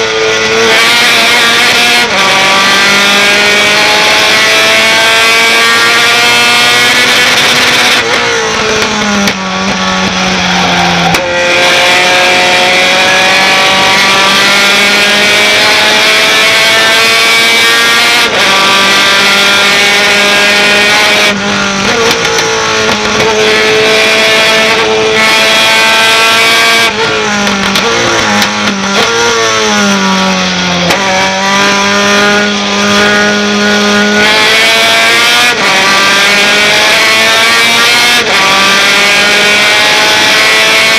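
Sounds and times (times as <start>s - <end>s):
truck engine at high revs: 0.0s - 40.9s.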